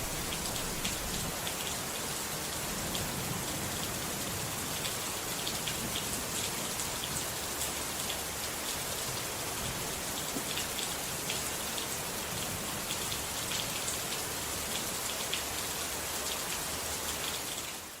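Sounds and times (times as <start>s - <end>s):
steady rainfall: 0.0s - 18.0s.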